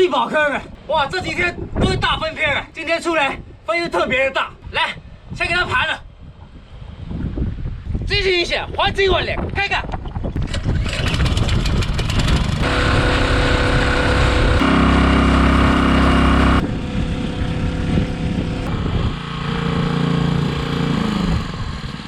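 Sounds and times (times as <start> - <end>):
motor running loud: 10.8 - 22.0.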